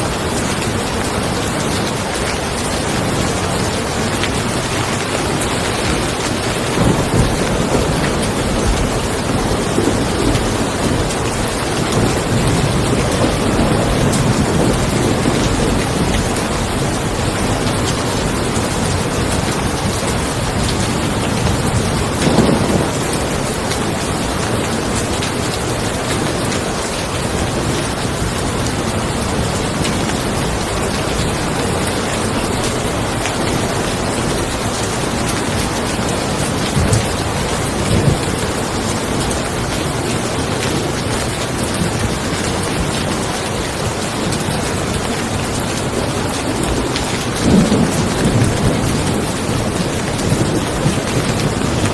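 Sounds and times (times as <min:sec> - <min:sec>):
rain falling on a car: 0:00.0 - 0:51.9
low rumble of thunder: 0:05.7 - 0:39.3, 0:46.6 - 0:51.9.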